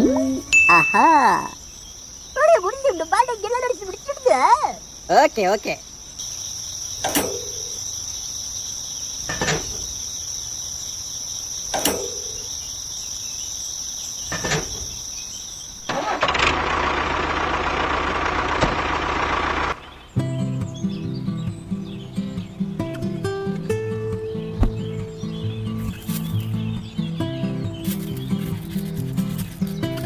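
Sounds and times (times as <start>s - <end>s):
crickets trilling: 0.0s - 16.3s, 18.9s - 30.0s
sharp knocks: 11.7s - 12.4s
small tractor motor running: 15.9s - 20.1s.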